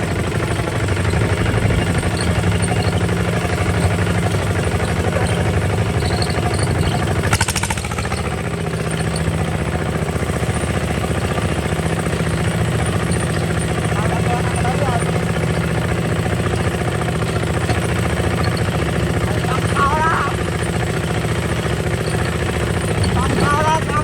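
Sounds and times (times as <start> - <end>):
diesel engine running: 0.0 - 24.0
short rattle: 0.3 - 9.9.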